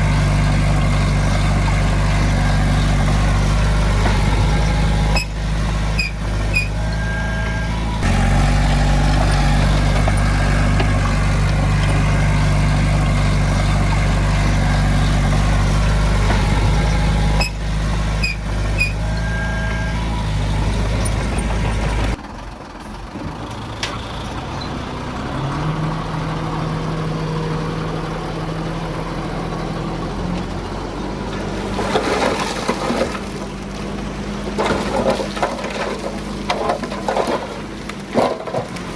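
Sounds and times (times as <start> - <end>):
diesel engine running: 0.0 - 38.9
short high squeals or beeps: 6.0 - 7.9, 18.2 - 20.1.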